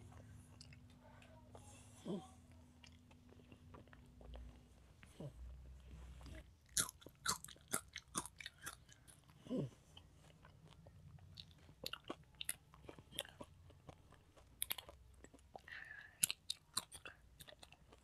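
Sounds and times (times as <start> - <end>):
wet chewing clicks: 2.8 - 5.2, 6.3 - 9.4, 10.0 - 18.0.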